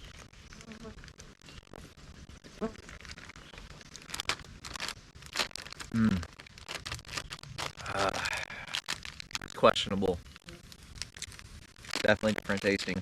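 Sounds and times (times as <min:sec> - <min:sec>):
plastic packaging crinkling and tearing: 0:02.6 - 0:13.0
person humming: 0:05.9 - 0:06.3, 0:07.8 - 0:08.7.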